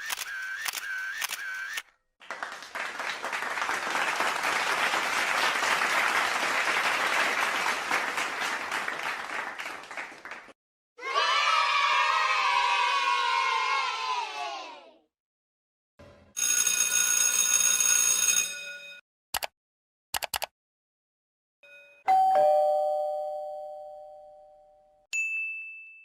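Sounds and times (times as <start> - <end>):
sharp clicks: 20.2 - 20.5
bright ringing chime: 21.7 - 26.0
short high ding: 21.7 - 26.0
two-tone doorbell ding-dong: 21.7 - 26.0.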